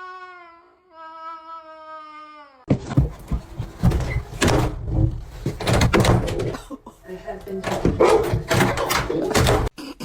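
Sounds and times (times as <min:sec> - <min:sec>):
clattering knocks: 0:02.7 - 0:06.7, 0:07.4 - 0:09.7.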